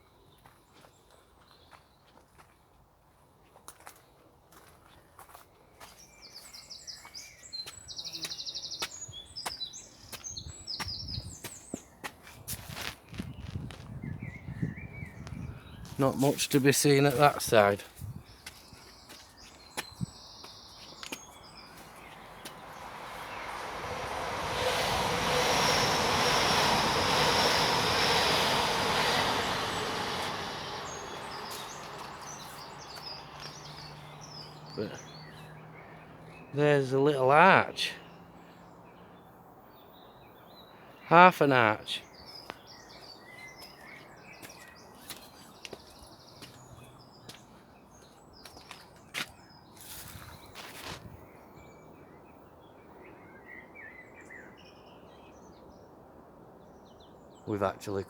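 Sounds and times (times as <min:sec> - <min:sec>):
footsteps on path: 0:00.3 - 0:14.2, 0:15.3 - 0:23.4, 0:28.6 - 0:35.6, 0:42.3 - 0:51.1
songbird singing: 0:03.8 - 0:56.0, 0:56.6 - 0:58.0
train passing: 0:21.4 - 0:36.9.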